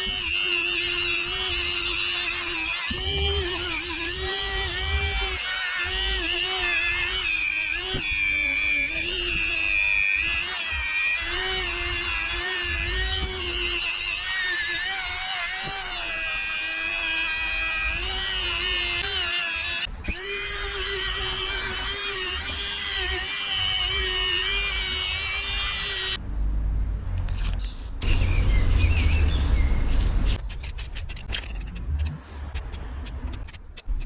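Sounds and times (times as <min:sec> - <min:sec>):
electric drill whining: 0:00.0 - 0:26.2.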